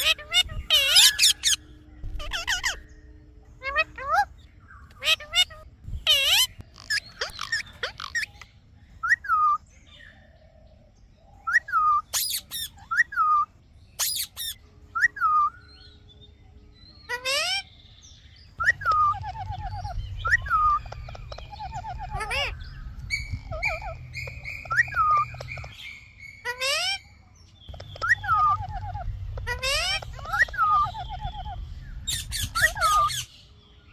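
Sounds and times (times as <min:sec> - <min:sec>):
parrot chirping and screeching: 0:00.0 - 0:02.9, 0:03.6 - 0:08.5, 0:11.6 - 0:15.5, 0:17.1 - 0:17.7, 0:18.6 - 0:27.1, 0:27.7 - 0:33.3
rapid repeated bird notes: 0:00.0 - 0:09.6, 0:11.7 - 0:16.1, 0:17.1 - 0:33.9
low rumble: 0:18.4 - 0:26.4, 0:27.6 - 0:33.3.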